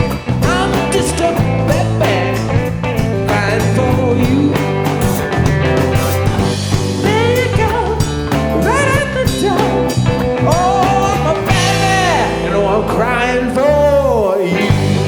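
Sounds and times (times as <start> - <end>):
person singing: 0.0 - 5.5, 6.9 - 15.0
rock band playing live: 0.0 - 15.0.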